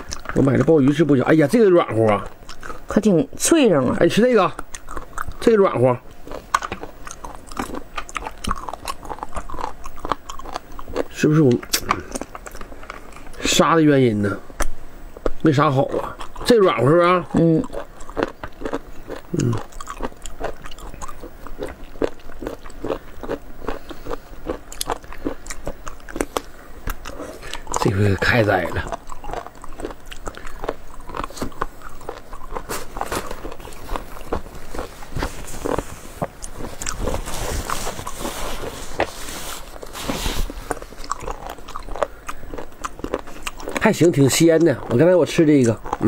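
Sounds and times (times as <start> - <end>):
crunchy chewing and biting: 0.0 - 13.5, 14.4 - 46.0
mouth clicks and smacks: 6.6 - 13.4.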